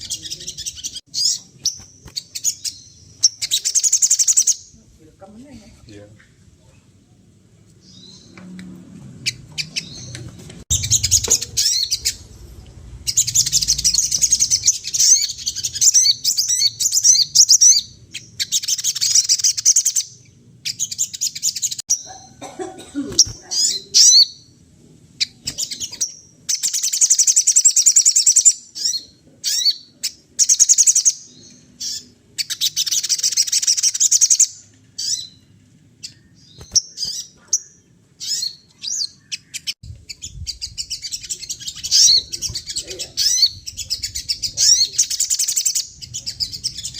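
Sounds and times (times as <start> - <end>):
songbird chirping trills: 9.2 - 22.4
lower falling bird call: 9.3 - 17.6.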